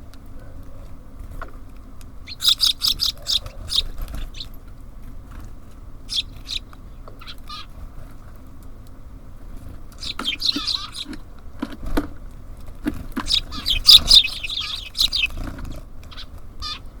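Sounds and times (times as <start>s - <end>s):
small songbirds chirping: 2.2s - 4.8s, 6.0s - 7.8s, 9.9s - 11.3s, 13.0s - 17.0s.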